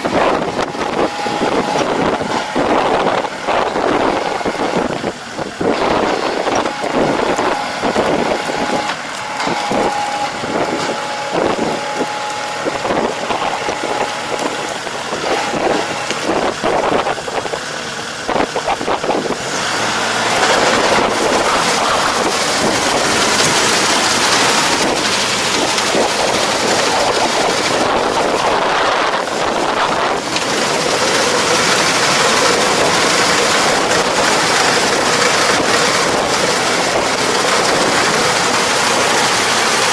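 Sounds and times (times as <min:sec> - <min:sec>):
farm machinery running: 0:00.0 - 0:39.9
wind on microphone: 0:00.0 - 0:39.9.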